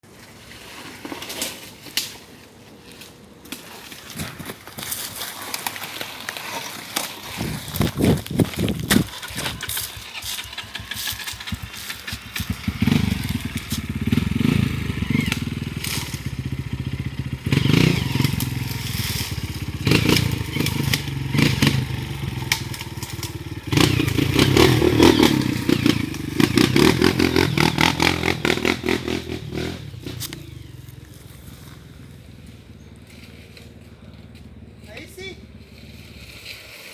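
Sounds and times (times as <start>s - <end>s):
stones and brush clattering: 4.0s - 12.4s
motorbike engine revving: 7.4s - 36.7s.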